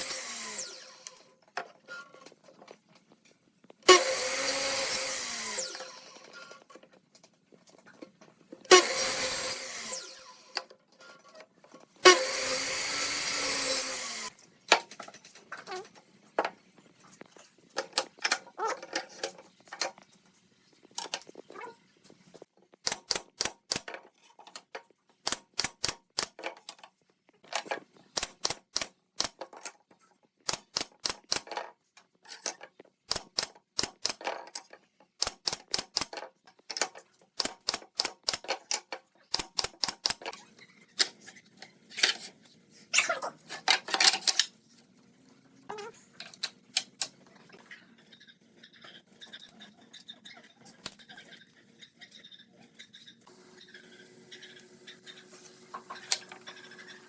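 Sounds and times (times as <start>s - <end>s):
power tool spinning: 0.0s - 1.3s, 3.8s - 6.6s, 8.7s - 10.7s, 12.0s - 14.4s.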